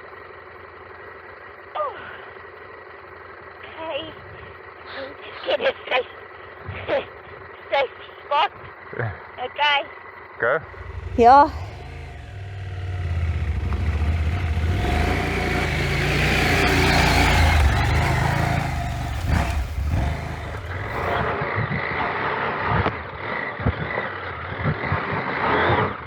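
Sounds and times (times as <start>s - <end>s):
motorcycle engine revving hard: 10.7s - 21.4s.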